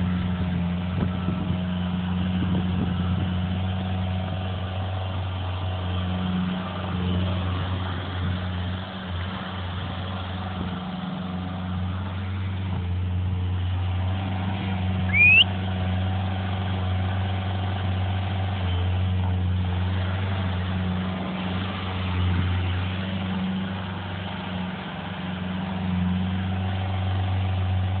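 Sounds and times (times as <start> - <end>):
heavy machine engine humming: 0.0 - 28.0
loud rising whistle: 15.1 - 15.7.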